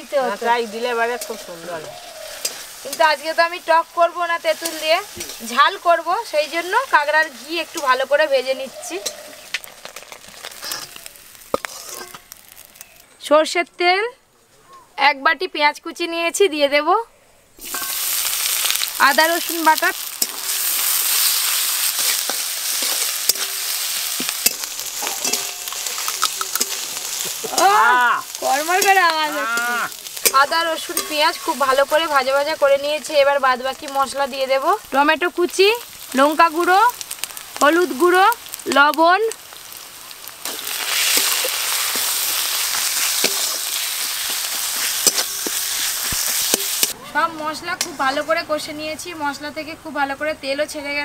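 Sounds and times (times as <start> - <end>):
onions sizzling in oil: 0.0 - 13.6, 17.6 - 51.0
spatula scraping a wok: 0.7 - 3.4, 4.5 - 5.6, 7.6 - 12.8, 17.6 - 18.8, 20.0 - 27.7, 40.4 - 47.0.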